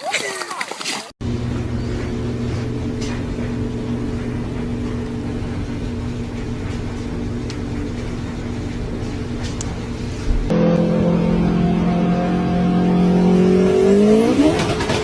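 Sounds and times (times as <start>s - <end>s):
low mechanical hum: 1.2s - 13.1s.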